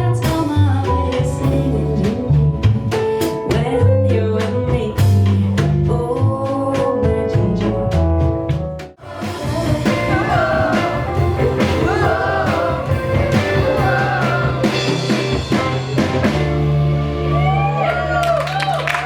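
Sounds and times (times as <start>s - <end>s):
live band playing: 0.0s - 19.0s
person singing: 9.0s - 15.1s.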